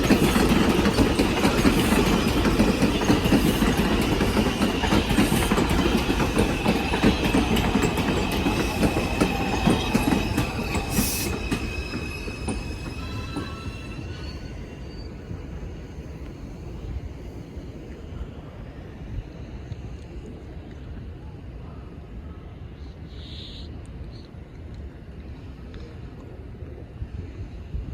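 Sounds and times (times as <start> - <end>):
subway train wheels squealing: 0.0 - 19.5, 22.7 - 24.2
train rumble: 0.0 - 27.9.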